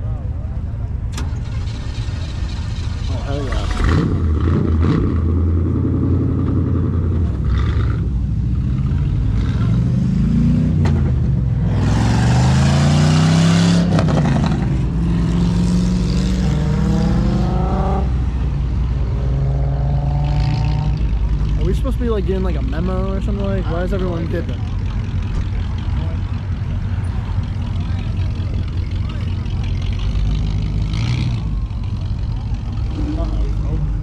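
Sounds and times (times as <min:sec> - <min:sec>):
car engines revving: 0:00.0 - 0:34.0
car accelerating hard: 0:08.8 - 0:18.4.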